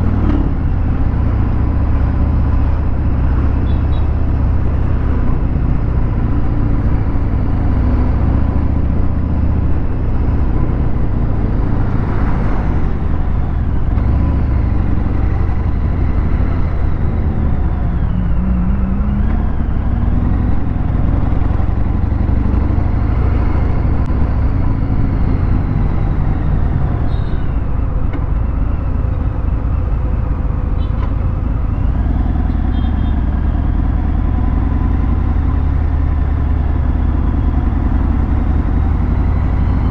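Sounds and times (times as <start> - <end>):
motorcycle engine running at low revs: 0.0 - 39.9.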